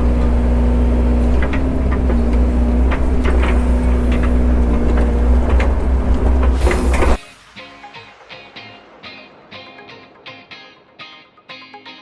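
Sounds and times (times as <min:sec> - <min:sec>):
excavator engine running under load: 0:00.0 - 0:07.2.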